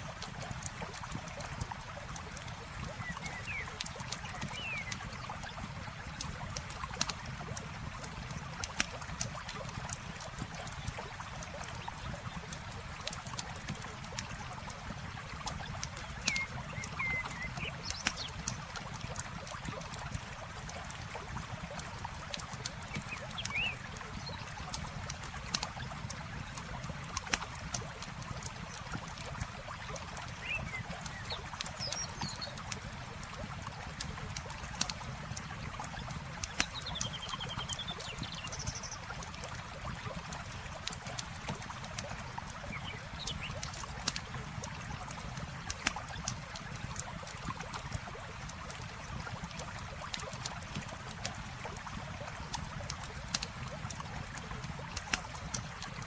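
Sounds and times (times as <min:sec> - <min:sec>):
campfire crackling and popping: 0:00.0 - 0:56.0
running water: 0:00.0 - 0:56.0
bird chirps: 0:16.2 - 0:18.2.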